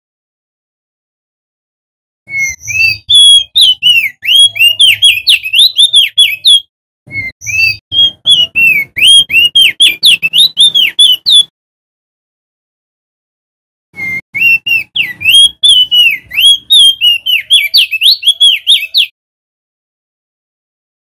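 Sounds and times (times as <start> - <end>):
bird singing whistled notes: 2.3 - 11.5, 14.0 - 19.2.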